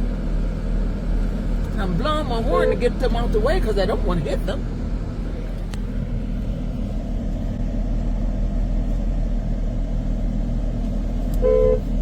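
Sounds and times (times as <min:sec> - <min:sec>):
car rumble inside cabin: 0:00.0 - 0:12.0
car horn blast: 0:11.4 - 0:12.0.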